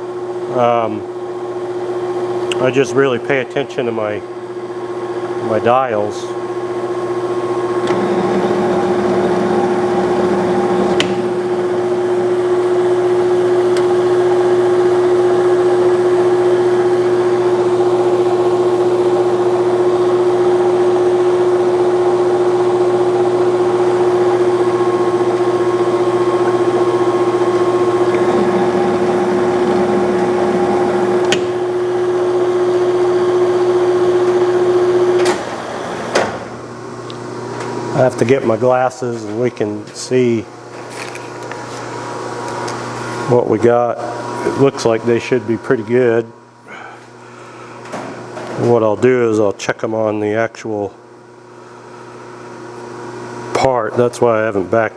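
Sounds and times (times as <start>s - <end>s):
metal lathe humming: 4.3s - 38.3s
machine switch click: 31.2s - 31.6s.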